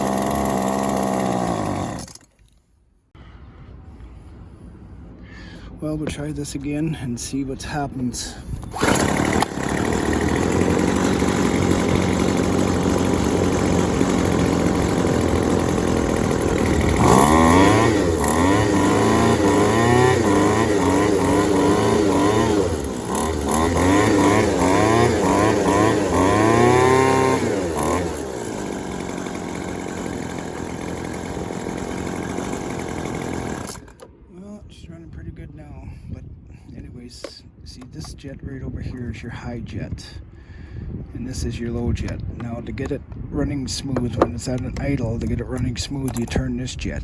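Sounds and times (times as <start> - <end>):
string trimmer engine revving: 0.0 - 2.3, 8.6 - 34.1.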